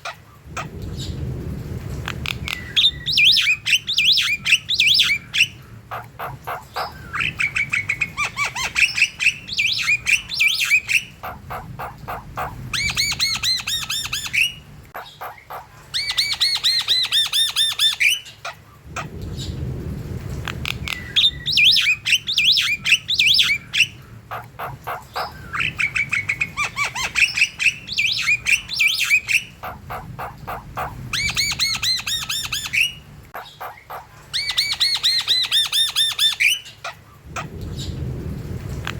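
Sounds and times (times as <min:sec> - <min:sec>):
low rustle: 0:00.4 - 0:02.7, 0:18.8 - 0:21.1, 0:37.2 - 0:38.9.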